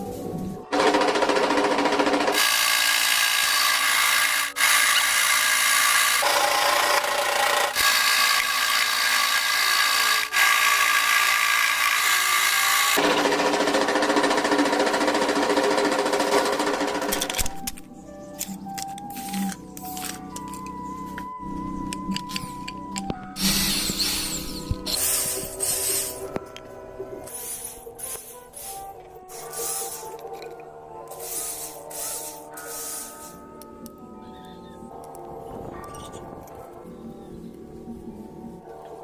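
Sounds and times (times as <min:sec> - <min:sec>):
power tool motor whine: 0:02.3 - 0:16.8.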